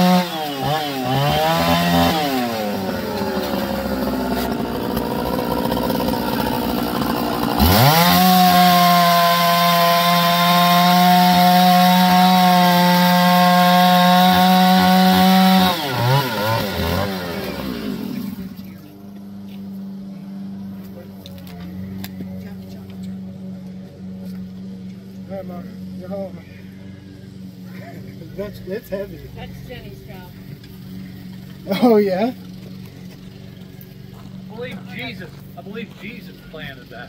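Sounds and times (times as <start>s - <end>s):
two-stroke chainsaw revving: 0.0s - 19.4s, 30.4s - 35.9s.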